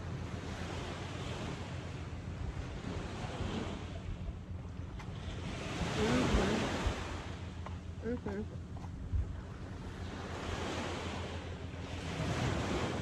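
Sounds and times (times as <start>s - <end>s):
ocean waves washing ashore: 0.0s - 13.0s
wind buffeting microphone: 0.0s - 13.0s.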